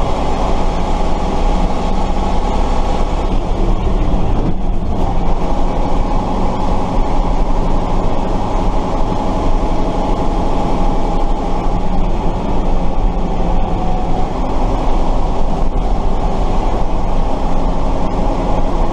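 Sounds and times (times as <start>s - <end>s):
truck diesel engine running: 0.0s - 18.9s.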